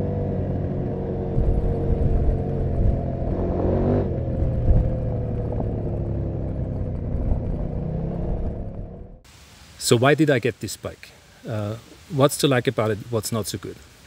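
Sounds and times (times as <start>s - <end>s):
motorcycle engine and exhaust: 0.0s - 9.2s.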